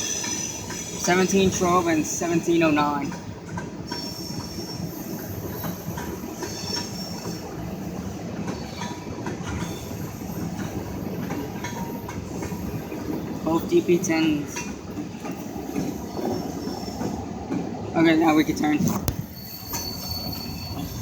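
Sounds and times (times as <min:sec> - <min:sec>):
high wheel squeal: 0:00.0 - 0:01.9, 0:03.9 - 0:07.4, 0:19.1 - 0:21.0
train wheels rumbling on track: 0:00.0 - 0:21.0.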